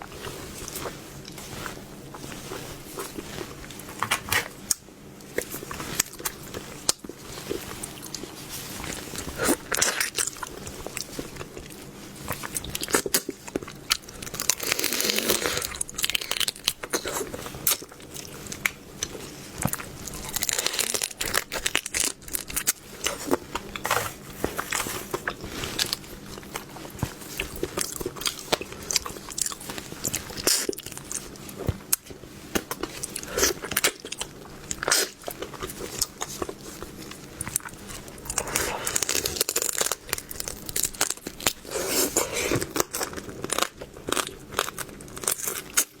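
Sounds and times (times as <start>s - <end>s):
person chewing crunchy food: 0.0s - 46.0s.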